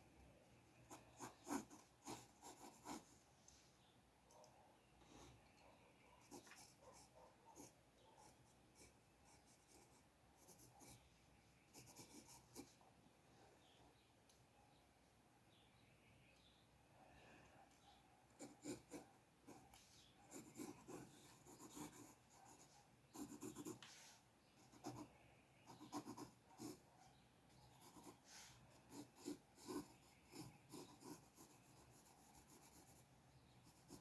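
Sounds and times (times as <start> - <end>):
pencil strokes on paper: 0.8 - 3.2, 18.4 - 25.1, 27.6 - 34.0.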